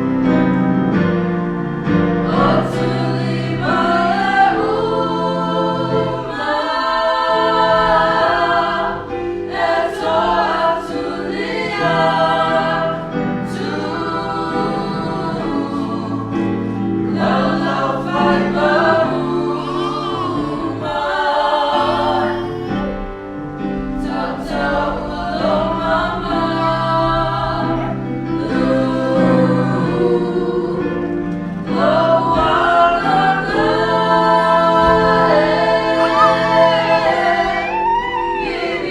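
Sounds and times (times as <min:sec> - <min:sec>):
group of voices singing: 0:01.8 - 0:38.9.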